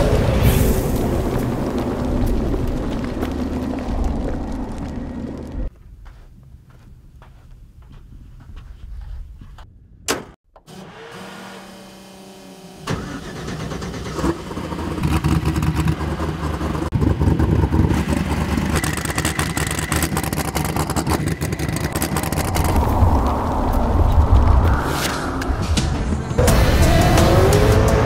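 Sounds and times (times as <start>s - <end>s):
engine running rough and revving: 10.8s - 24.8s, 25.7s - 28.0s.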